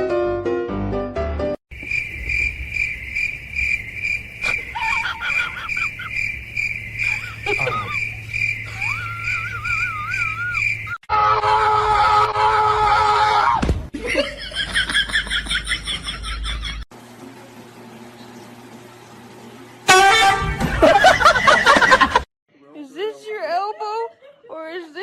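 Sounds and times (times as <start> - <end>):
insect chirping: 1.7 - 11.0
warbling whistled bird calls: 1.8 - 11.0.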